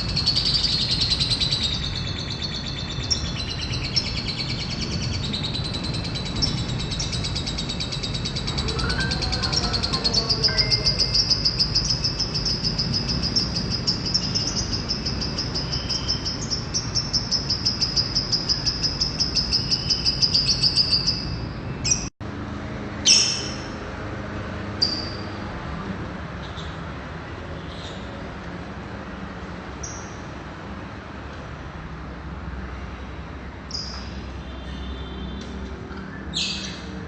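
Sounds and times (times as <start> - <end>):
bird trilling: 0.0 - 22.1, 23.0 - 23.8.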